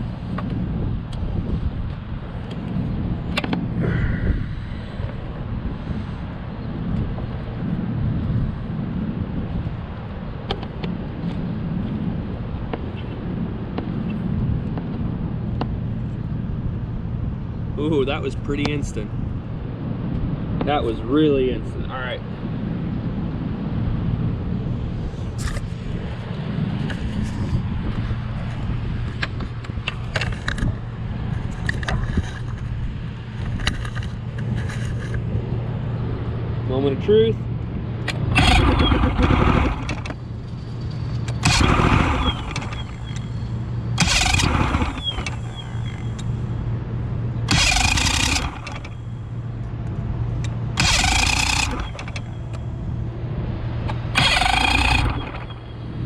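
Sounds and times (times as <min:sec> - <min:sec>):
outboard boat motor running: 0:38.2 - 0:56.0.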